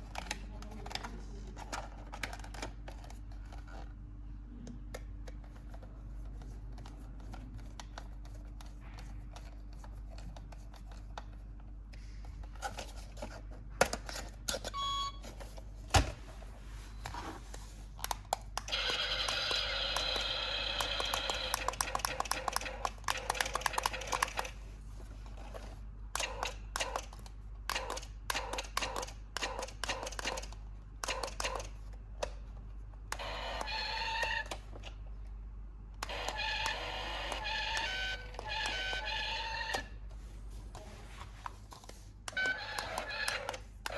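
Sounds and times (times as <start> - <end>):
buzzing electronic toy sound: 18.7 - 21.6, 36.0 - 39.8.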